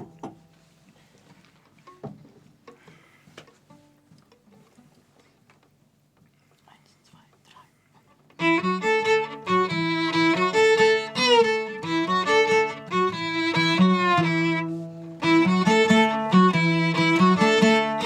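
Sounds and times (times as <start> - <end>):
string chords: 8.4 - 18.0
violin melody: 8.4 - 18.0.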